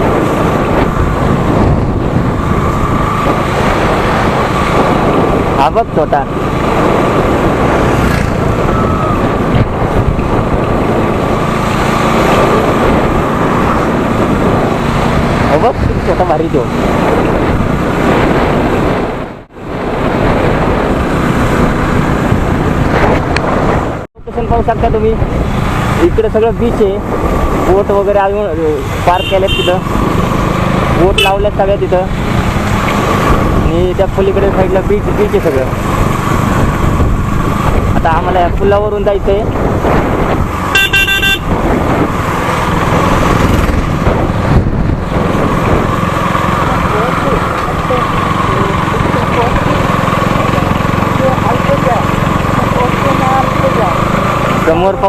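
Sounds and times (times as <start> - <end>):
road noise: 0.0 - 55.0
wind buffeting microphone: 0.0 - 55.0
vehicle engine running: 40.5 - 55.0
short horn toot: 40.7 - 41.5.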